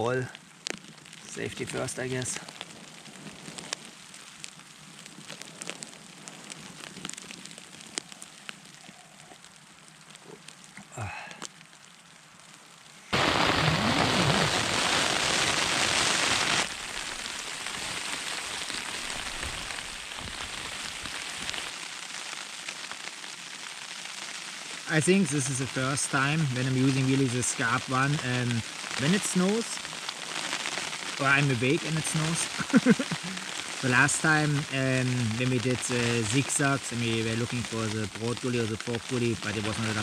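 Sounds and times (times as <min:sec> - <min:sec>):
hail pattering on tent fabric: 0:00.0 - 0:40.0
steady hiss: 0:00.0 - 0:40.0
loud rush of noise: 0:13.2 - 0:17.8.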